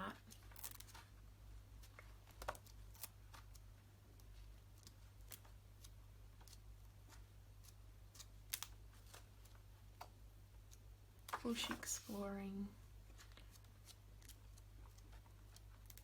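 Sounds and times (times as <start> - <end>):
book pages turning: 0.2 - 1.2, 1.8 - 10.1, 13.1 - 16.0.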